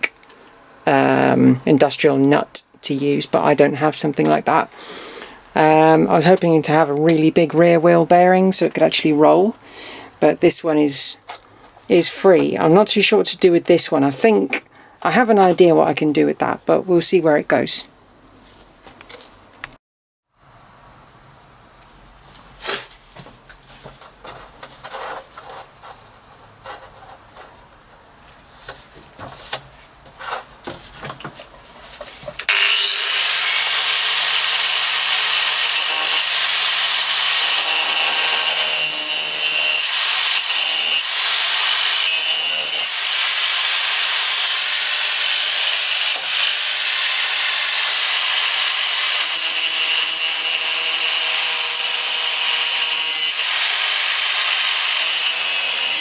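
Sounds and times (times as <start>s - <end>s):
power tool cutting pipe: 32.4s - 56.0s.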